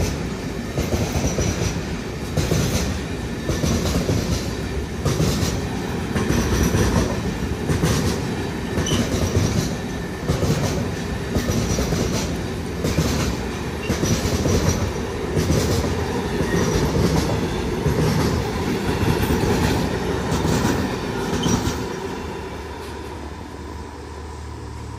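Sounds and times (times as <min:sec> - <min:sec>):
freight train rumbling: 0:00.0 - 0:24.9
wheel clatter over rail joints: 0:00.8 - 0:22.0.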